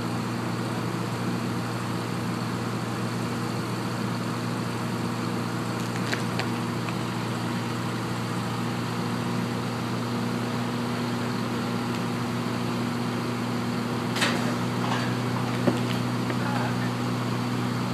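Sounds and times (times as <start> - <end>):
drill rig engine humming: 0.0 - 17.9.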